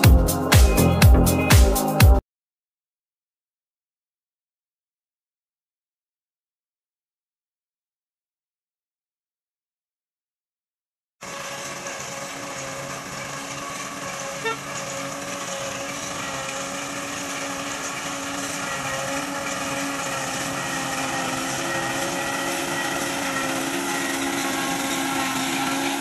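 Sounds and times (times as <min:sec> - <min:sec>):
grass cutter engine running: 0:00.0 - 0:01.6, 0:11.2 - 0:26.0.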